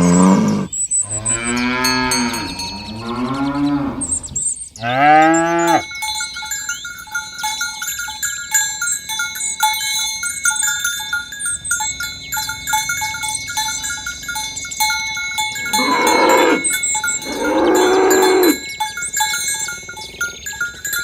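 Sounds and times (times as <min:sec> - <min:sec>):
cattle mooing: 0:00.0 - 0:04.2, 0:04.8 - 0:05.8, 0:15.7 - 0:18.6
birds chirping: 0:00.0 - 0:21.0
cowbells clanking: 0:00.0 - 0:21.0.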